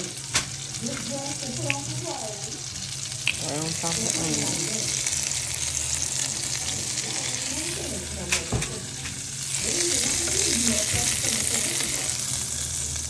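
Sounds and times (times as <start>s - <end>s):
food sizzling in a pan: 0.0s - 13.0s
faint voices: 6.2s - 12.4s.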